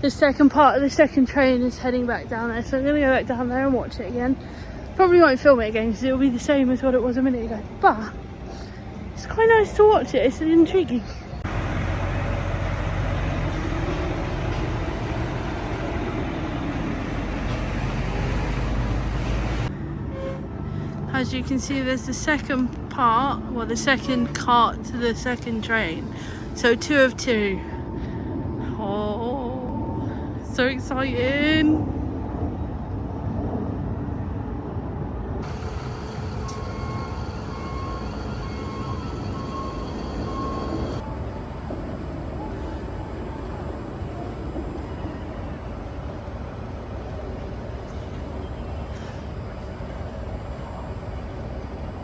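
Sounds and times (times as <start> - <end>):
heavy vehicle engine running: 11.3 - 19.9, 35.4 - 42.4
warning beeper: 35.4 - 41.0.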